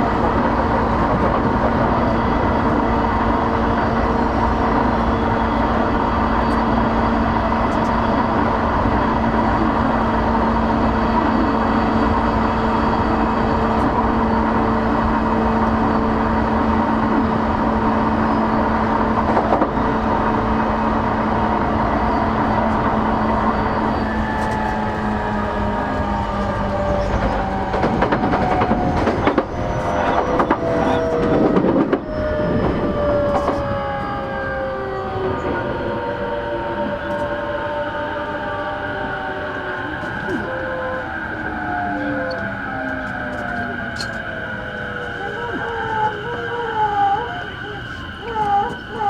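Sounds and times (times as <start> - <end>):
running gear hum: 0.0 - 49.0
train wheels rumbling on track: 0.0 - 49.0.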